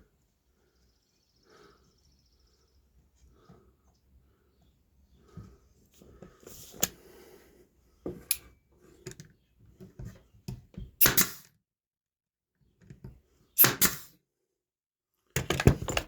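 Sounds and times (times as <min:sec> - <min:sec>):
wooden slats clicking and knocking: 0:15.4 - 0:16.0.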